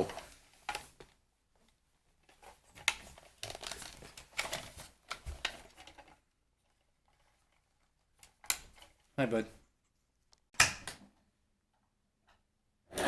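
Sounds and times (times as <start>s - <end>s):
plastic toy clicking and rustling: 2.2s - 9.2s.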